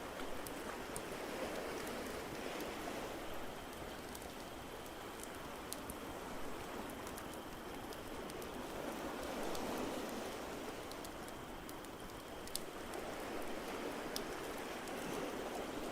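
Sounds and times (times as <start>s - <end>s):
steady watery hiss: 0.0s - 15.9s
fireplace crackling and popping: 3.6s - 15.0s.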